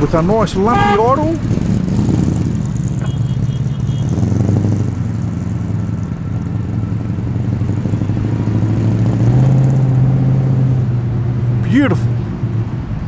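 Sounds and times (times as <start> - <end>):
car engine lumpy idle: 0.0 - 9.8.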